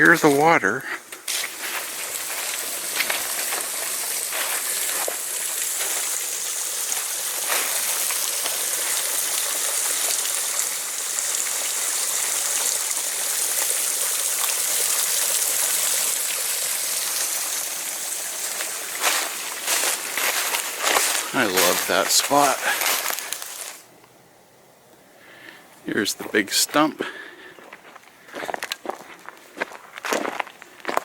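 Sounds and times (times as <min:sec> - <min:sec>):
small waterfall splashing: 0:00.0 - 0:23.8.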